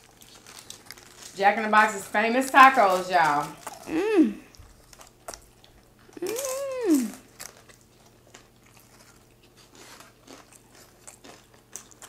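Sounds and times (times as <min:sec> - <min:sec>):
chewing crunches and clicks: 0:00.0 - 0:03.9, 0:04.5 - 0:12.0
taco shell crunching: 0:00.0 - 0:12.0.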